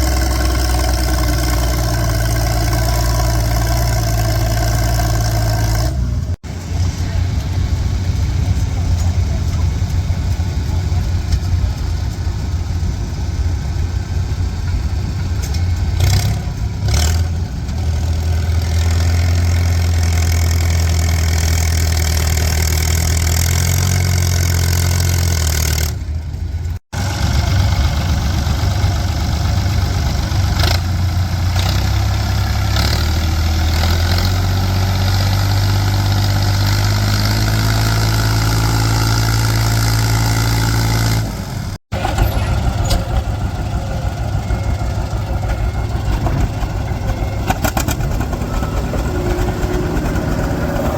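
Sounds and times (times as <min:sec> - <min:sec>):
tractor engine running under load: 0:00.0 - 0:50.9.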